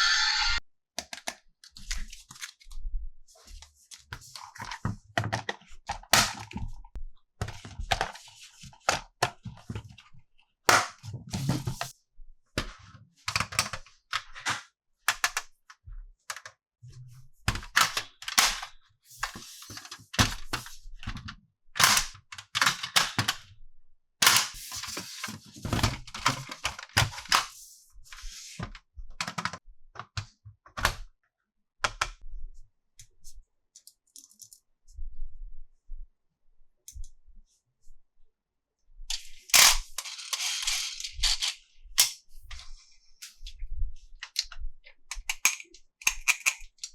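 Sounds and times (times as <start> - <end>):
plastic toy parts clicking: 39.1 - 42.2, 45.1 - 46.9.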